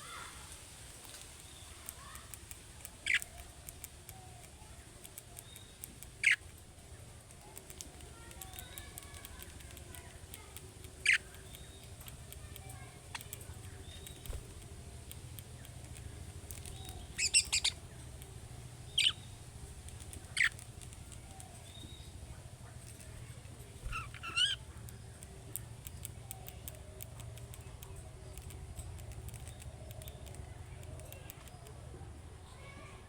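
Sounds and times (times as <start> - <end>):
budgerigar chirping: 3.0 - 3.4, 5.5 - 6.4, 11.0 - 12.0, 16.5 - 18.0, 18.8 - 19.4, 20.2 - 22.2, 23.8 - 25.2
steady low hum: 9.2 - 32.8.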